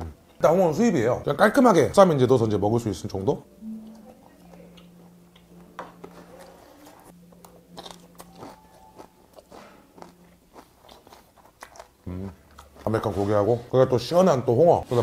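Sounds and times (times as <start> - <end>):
man chewing with crunches: 4.8 - 13.1.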